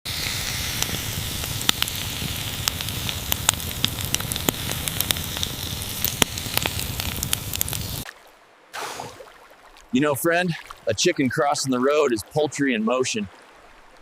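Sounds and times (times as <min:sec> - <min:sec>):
campfire crackling: 0:00.1 - 0:08.3.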